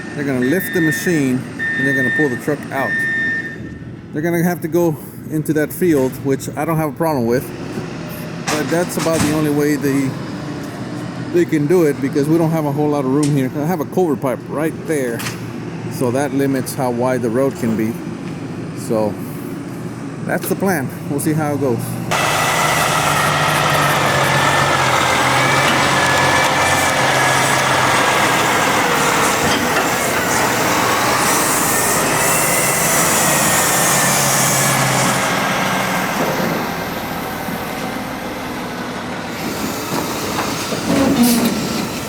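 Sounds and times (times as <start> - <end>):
truck and forklift engines running: 0.0 - 42.0.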